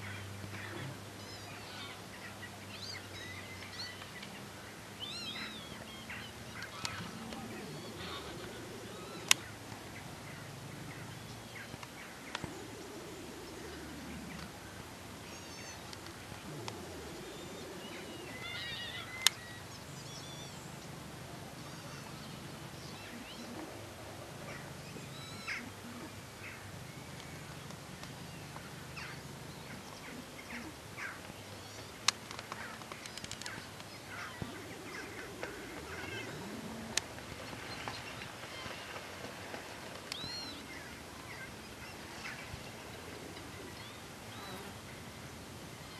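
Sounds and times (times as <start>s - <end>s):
faint bird chirps: 40.1s - 44.7s.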